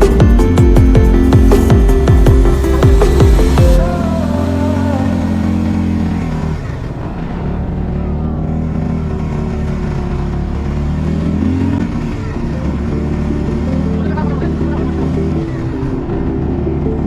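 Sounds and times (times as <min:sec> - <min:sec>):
quad bike engine running: 0:00.0 - 0:17.0.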